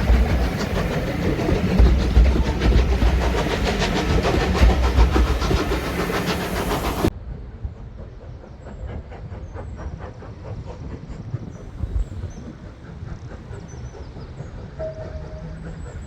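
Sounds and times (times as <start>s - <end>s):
train wheels clicking over rail joints: 0.0s - 7.1s.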